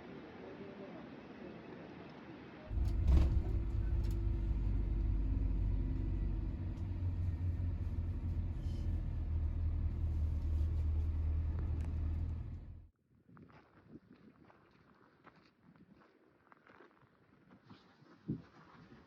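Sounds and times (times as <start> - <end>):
car engine rumble: 2.7 - 12.9
road noise: 2.7 - 12.9.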